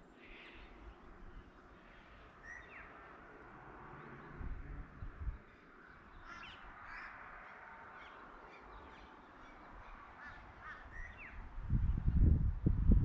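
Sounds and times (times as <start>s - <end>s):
small birds chirping: 0.0s - 3.3s, 3.9s - 12.4s
wind buffeting microphone: 4.2s - 5.5s, 10.9s - 13.0s
crow cawing: 10.2s - 11.1s.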